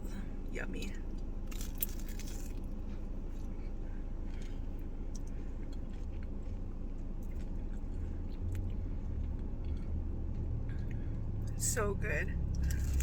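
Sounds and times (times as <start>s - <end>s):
air conditioning hum: 0.0s - 13.0s
car engine idling: 0.0s - 13.0s
person chewing: 1.5s - 11.2s, 12.5s - 13.0s.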